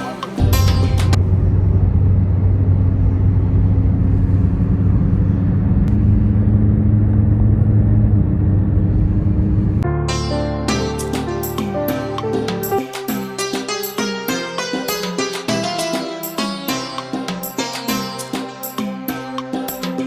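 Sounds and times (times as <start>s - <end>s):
music: 0.0s - 1.2s, 9.8s - 20.0s
constant hum: 0.0s - 9.8s
low mechanical rumble: 0.0s - 9.8s.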